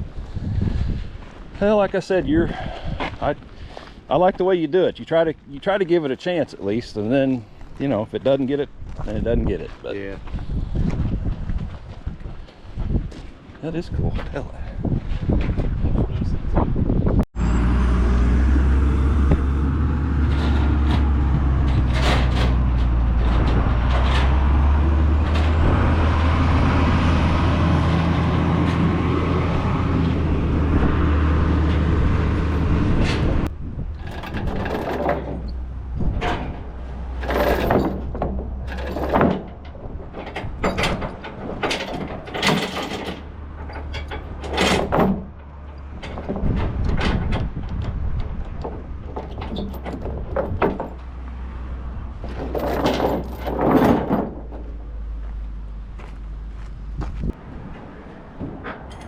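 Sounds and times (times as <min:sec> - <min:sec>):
large vehicle engine running: 0:17.4 - 0:59.0
metallic clanks and knocks: 0:20.1 - 0:26.4, 0:31.6 - 0:51.1, 0:52.2 - 0:55.0, 0:58.4 - 0:59.0.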